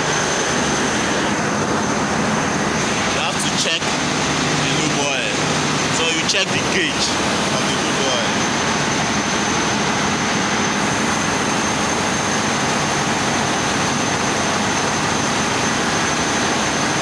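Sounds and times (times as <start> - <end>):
faint high whine: 0.0 - 13.1
engine room machinery drone: 0.0 - 17.0.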